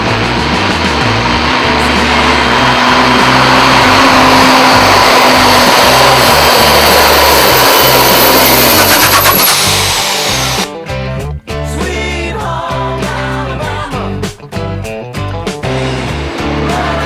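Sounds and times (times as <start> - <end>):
high turbo whine: 0.0 - 10.8, 15.6 - 17.0
diesel truck engine roaring: 0.0 - 11.0, 12.8 - 17.0.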